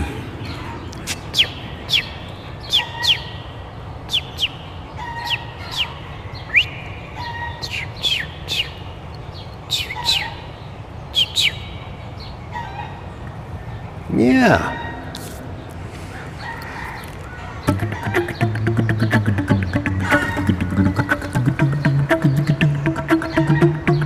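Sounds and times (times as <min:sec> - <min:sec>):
small bird chirping: 0:00.0 - 0:12.7, 0:16.2 - 0:24.0.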